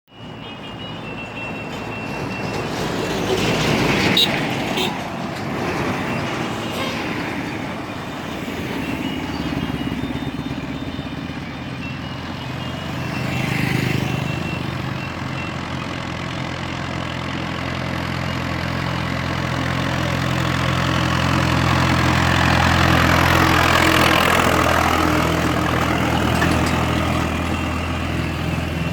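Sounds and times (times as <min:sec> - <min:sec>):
tractor diesel engine under load: 0:00.1 - 0:28.9.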